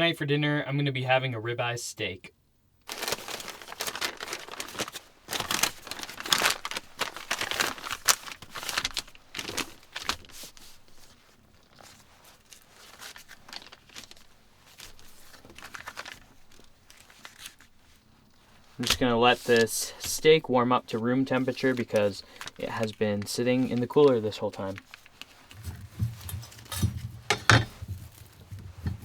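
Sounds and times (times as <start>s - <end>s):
packaging crinkling and tearing: 2.8s - 26.8s.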